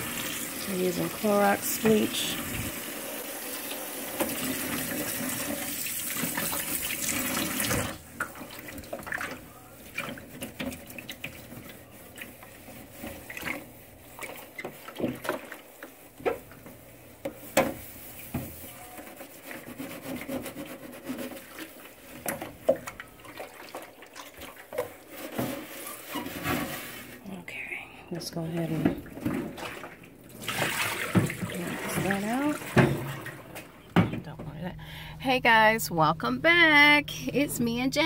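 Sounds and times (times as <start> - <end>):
tap water running into sink: 0.0 - 20.4, 28.8 - 33.7.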